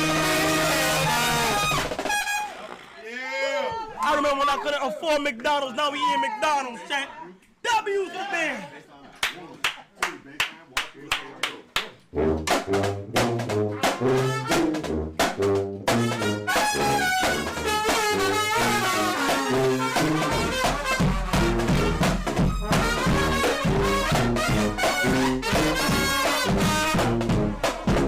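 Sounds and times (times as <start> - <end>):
brass band playing: 0.0 - 2.9, 12.1 - 28.0.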